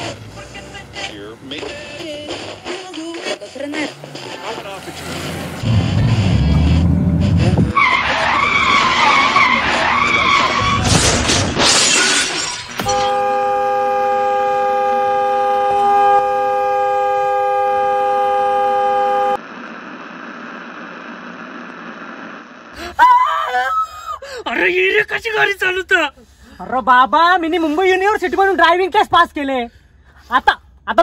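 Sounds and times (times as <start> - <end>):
crash with shattering glass: 10.8 - 13.1
car horn blaring: 12.8 - 19.4.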